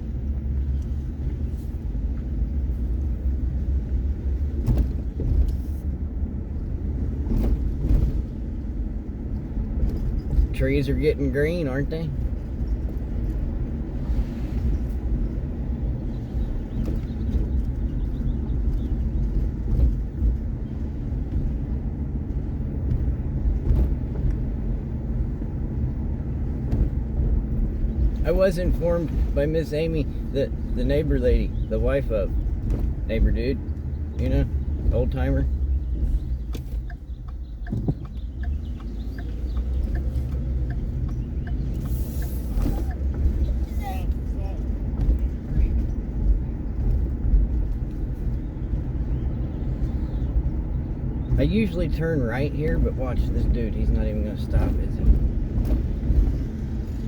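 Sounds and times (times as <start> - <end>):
vehicle rumble from inside cab: 0.0 - 57.0
light rattles and clicks: 0.6 - 57.0
turn signal ticking: 14.7 - 57.0.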